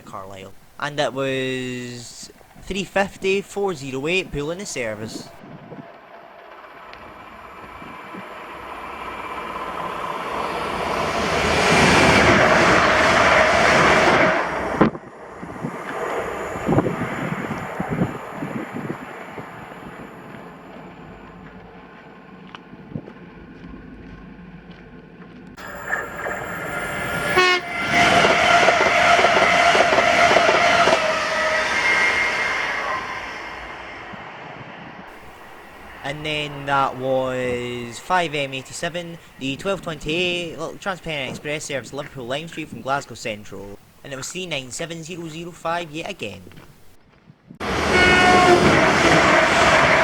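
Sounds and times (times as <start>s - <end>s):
faint wind noise: 0.0s - 6.0s, 7.0s - 24.0s
train passing at speed: 4.0s - 42.4s, 47.6s - 50.0s
steady high tone: 25.6s - 28.6s, 35.1s - 41.8s.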